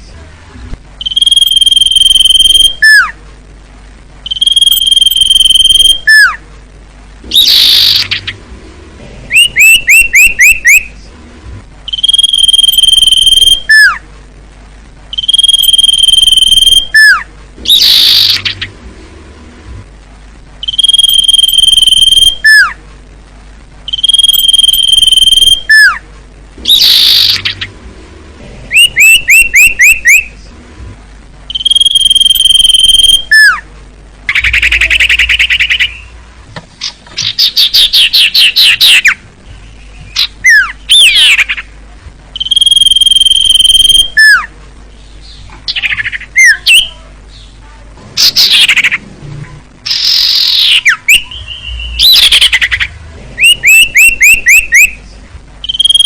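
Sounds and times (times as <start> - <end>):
birds whistling and trilling: 1.0 - 3.2, 4.3 - 6.4, 7.3 - 8.4, 9.3 - 11.0, 11.9 - 14.0, 15.2 - 18.7, 20.6 - 22.8, 23.9 - 26.0, 26.7 - 27.7, 28.7 - 30.4, 31.5 - 33.6, 34.3 - 36.2, 36.8 - 41.7, 42.4 - 47.6, 48.2 - 49.0, 49.9 - 56.0.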